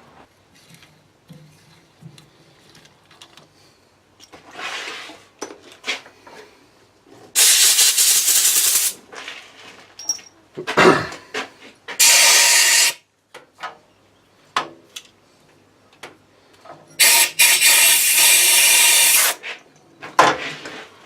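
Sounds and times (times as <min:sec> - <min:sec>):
loud spraying hiss: 0:07.4 - 0:09.0, 0:12.0 - 0:13.0, 0:17.0 - 0:19.4.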